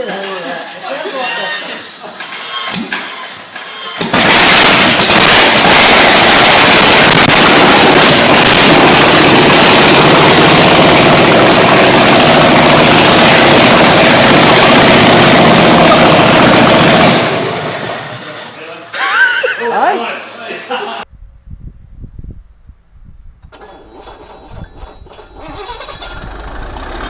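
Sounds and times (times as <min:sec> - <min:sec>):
large engine running loudly: 0:04.7 - 0:18.3, 0:26.0 - 0:27.0.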